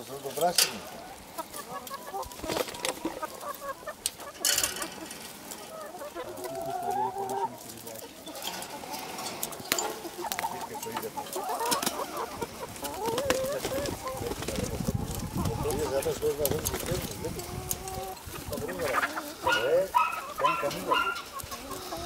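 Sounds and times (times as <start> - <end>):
hens clucking: 0.0 - 22.0.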